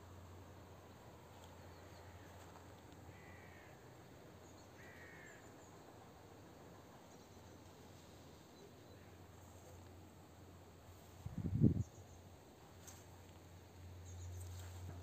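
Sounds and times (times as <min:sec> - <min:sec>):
faint bird calling: 0:01.8 - 0:03.8, 0:04.5 - 0:05.7.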